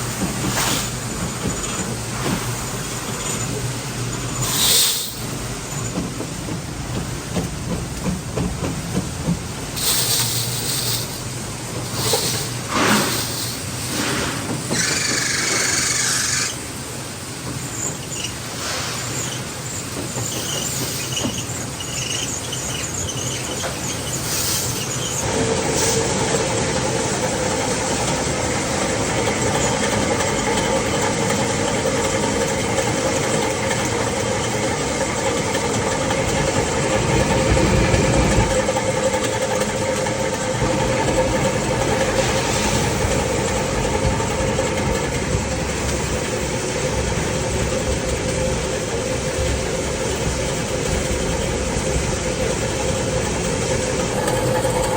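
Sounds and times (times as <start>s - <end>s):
workshop machinery running: 8.6s - 31.0s, 50.9s - 54.9s
steady machine whine: 52.9s - 54.9s.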